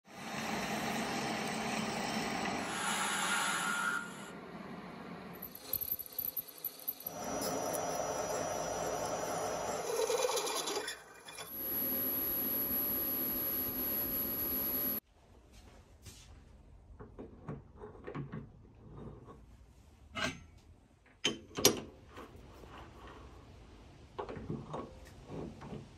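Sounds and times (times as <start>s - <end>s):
machine tool running: 5.4s - 15.0s.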